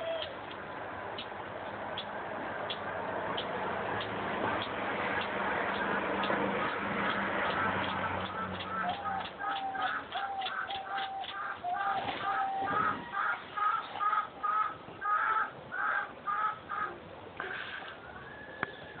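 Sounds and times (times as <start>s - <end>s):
bird calling harsh notes: 0.0s - 0.6s, 6.6s - 19.0s.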